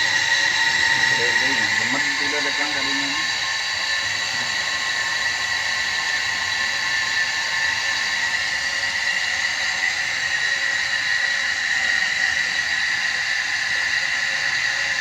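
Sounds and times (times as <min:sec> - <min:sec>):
electric motor whining: 0:00.0 - 0:08.3.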